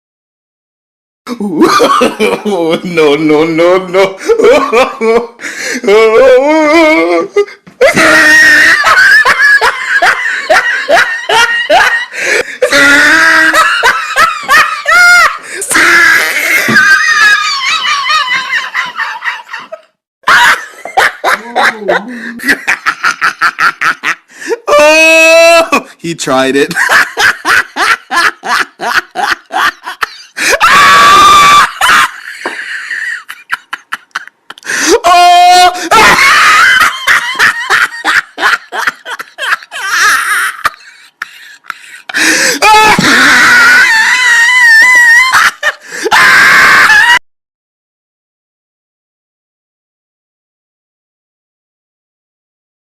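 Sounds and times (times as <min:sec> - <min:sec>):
person rapid laughing: 0:01.3 - 0:26.0, 0:26.6 - 0:47.2
person screaming: 0:05.8 - 0:09.3, 0:12.6 - 0:18.4, 0:24.5 - 0:26.0, 0:30.4 - 0:32.2, 0:34.7 - 0:37.5, 0:42.2 - 0:47.2
high-pitched voice screaming: 0:24.7 - 0:25.8, 0:34.9 - 0:36.2.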